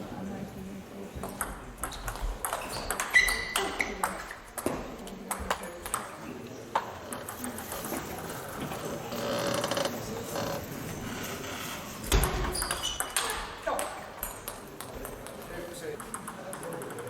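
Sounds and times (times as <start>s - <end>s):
table tennis ball clicks: 1.2s - 6.2s, 6.8s - 8.0s, 12.1s - 17.0s.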